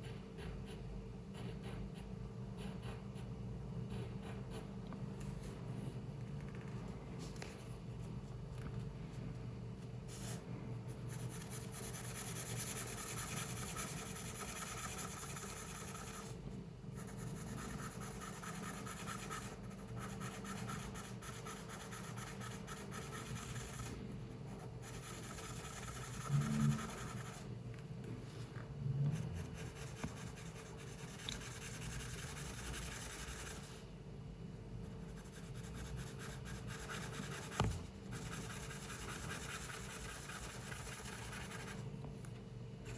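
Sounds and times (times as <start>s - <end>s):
constant low hum: 0.0s - 42.9s
pencil scratching on paper: 11.0s - 16.4s, 17.0s - 27.5s, 29.4s - 33.8s, 34.9s - 41.8s.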